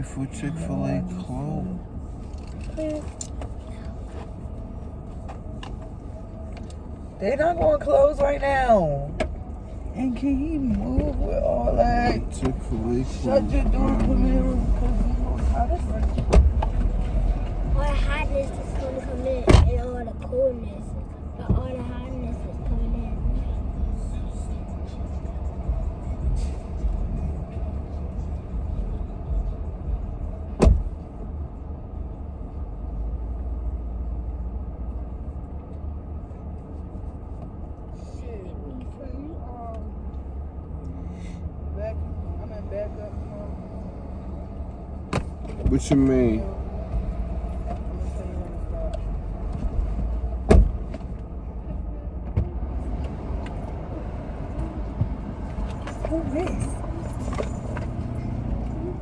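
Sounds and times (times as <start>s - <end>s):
car engine idling: 0.0s - 59.0s
sharp thump: 50.4s - 51.0s.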